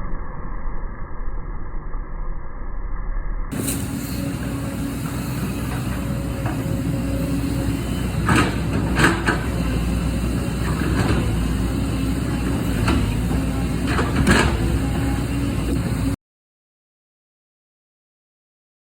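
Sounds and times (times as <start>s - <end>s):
excavator diesel engine running: 3.5s - 16.2s.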